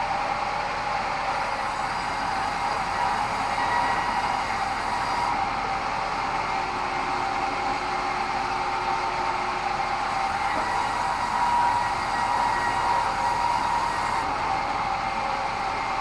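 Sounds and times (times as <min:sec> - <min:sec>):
bandsaw whine: 0:10.1 - 0:14.3.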